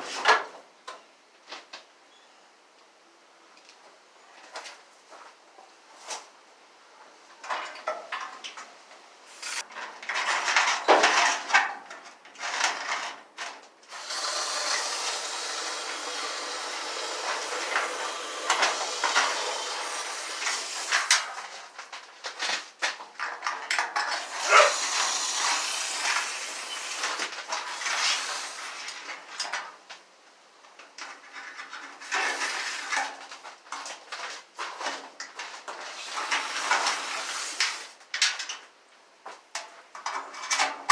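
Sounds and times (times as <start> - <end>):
aerosol spray hissing: 14.0 - 21.2, 24.2 - 28.6.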